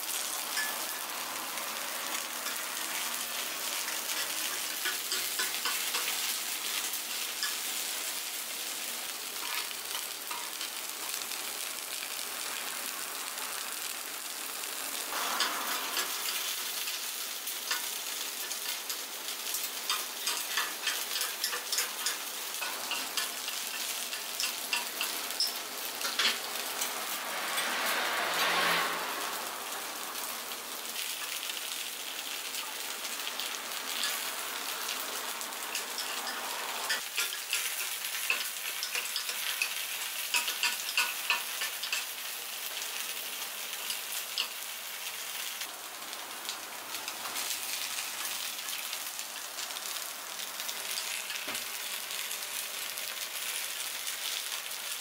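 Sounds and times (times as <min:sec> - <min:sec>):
batter sizzling in oil: 0:00.0 - 0:55.0
metal picks clicking on pan: 0:03.7 - 0:07.8, 0:09.4 - 0:10.8, 0:15.4 - 0:16.6, 0:17.6 - 0:27.0, 0:35.7 - 0:42.8, 0:43.8 - 0:44.6.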